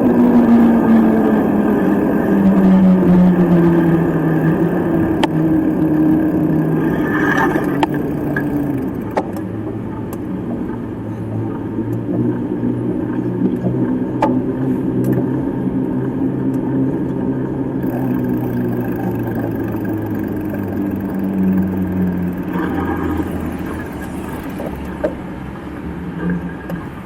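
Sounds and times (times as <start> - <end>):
sharp clicks: 0.0 - 9.5, 17.8 - 25.1
motorcycle engine running: 0.0 - 16.4, 17.6 - 25.2.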